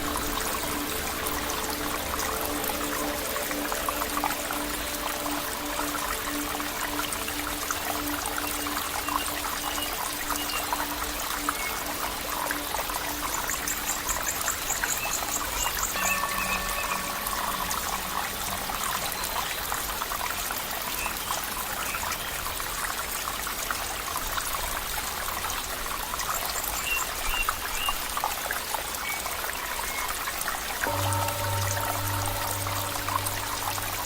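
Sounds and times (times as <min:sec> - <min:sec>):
low steady hum: 0:00.0 - 0:14.1, 0:30.8 - 0:34.0
water trickling and bubbling: 0:00.0 - 0:34.0.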